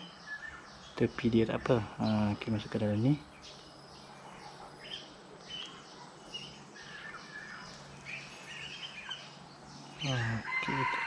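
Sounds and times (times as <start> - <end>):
faint steady noise: 0.0 - 11.0
small birds chirping: 0.0 - 11.0.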